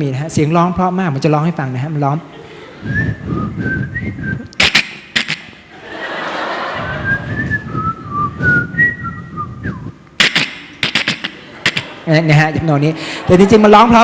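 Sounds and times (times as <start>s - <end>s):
man whistling birdsong: 7.1s - 10.0s
sharp clicks: 10.2s - 11.9s.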